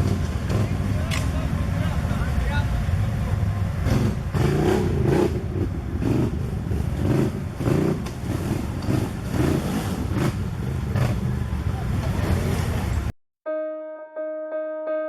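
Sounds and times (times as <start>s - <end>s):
quad bike engine revving: 0.0s - 1.3s, 3.8s - 13.1s.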